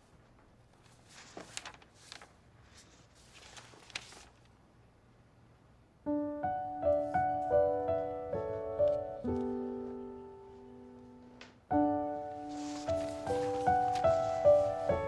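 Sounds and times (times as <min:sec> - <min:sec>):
faint rustling: 0:00.3 - 0:04.6, 0:12.3 - 0:15.0
piano music: 0:06.1 - 0:15.0.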